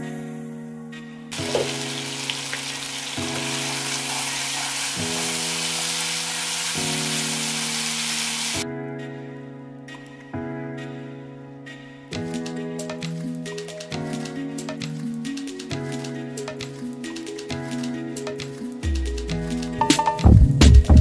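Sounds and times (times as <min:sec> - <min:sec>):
background music: 0:00.0 - 0:21.0
chicken sizzling in frying pan: 0:01.3 - 0:08.6.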